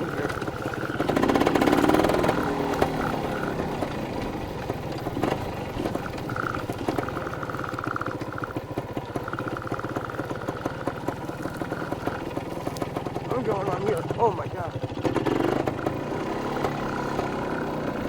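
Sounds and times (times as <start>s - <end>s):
dirt bike engine at low revs: 0.0s - 18.0s.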